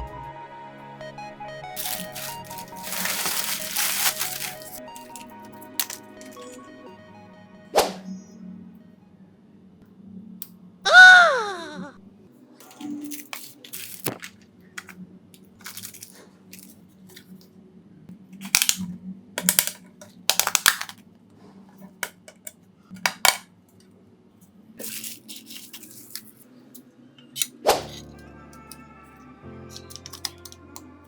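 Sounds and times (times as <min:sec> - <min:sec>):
small tools clicking and tapping: 0:21.9 - 0:23.4, 0:29.7 - 0:30.8.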